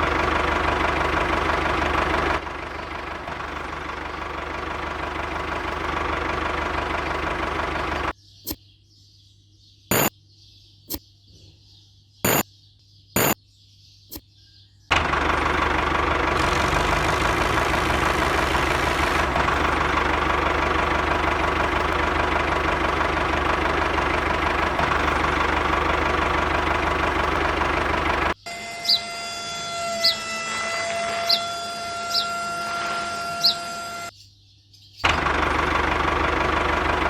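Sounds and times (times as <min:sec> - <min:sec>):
small engine running: 0:00.0 - 0:08.1, 0:09.9 - 0:10.1, 0:13.2 - 0:13.4, 0:14.9 - 0:34.1, 0:35.0 - 0:37.0
sharp clicks: 0:09.9 - 0:10.1, 0:13.2 - 0:13.4.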